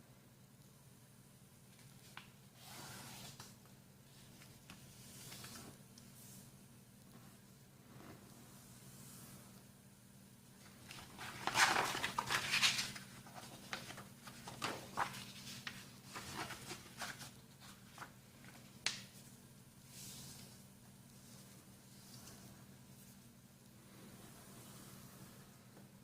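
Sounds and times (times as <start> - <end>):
paper rustling and crinkling: 10.6 - 19.2.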